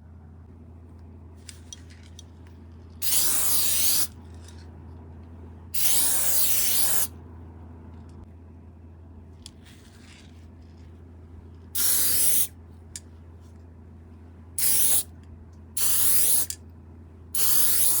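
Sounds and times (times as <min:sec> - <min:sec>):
spray paint can bursts: 0:03.0 - 0:04.1, 0:05.8 - 0:07.1, 0:11.8 - 0:12.5, 0:14.6 - 0:15.1, 0:15.8 - 0:16.5, 0:17.4 - 0:18.0.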